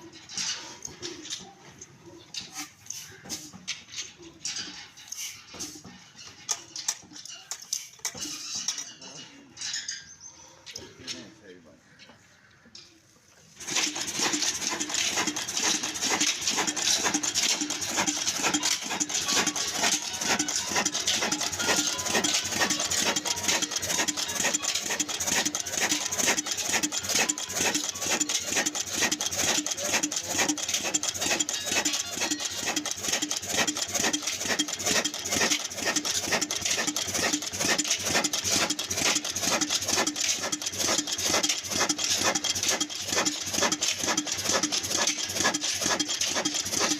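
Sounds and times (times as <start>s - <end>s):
diesel engine knocking: 13.6s - 46.9s.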